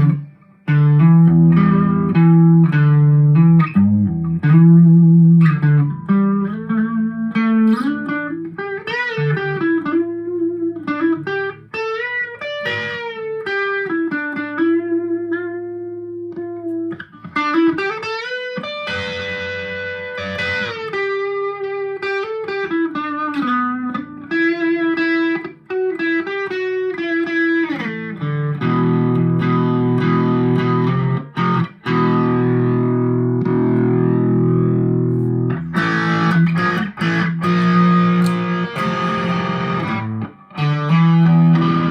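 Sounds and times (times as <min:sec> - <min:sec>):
electric guitar through amp: 0:00.0 - 0:41.9.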